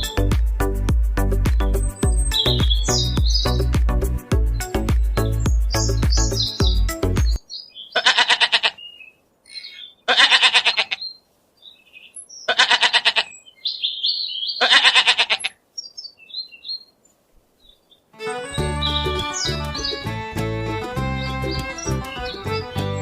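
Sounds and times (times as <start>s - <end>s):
birds chirping: 0.0s - 23.0s
animal bleating: 7.9s - 8.8s, 10.1s - 11.0s, 12.5s - 13.4s, 14.6s - 15.6s.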